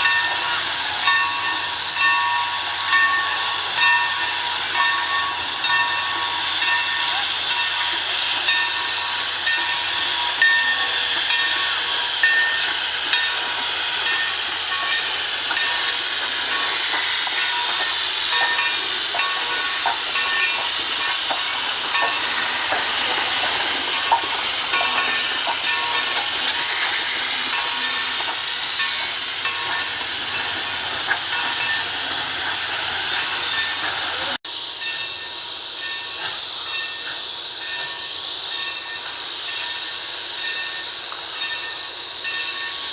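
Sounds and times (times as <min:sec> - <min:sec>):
steam train hissing: 0:00.0 - 0:42.9
train running on rails: 0:00.0 - 0:42.9.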